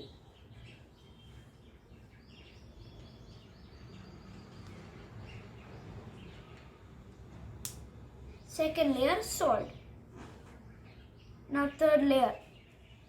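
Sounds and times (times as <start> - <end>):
faint bird chirps: 0.0 - 6.8.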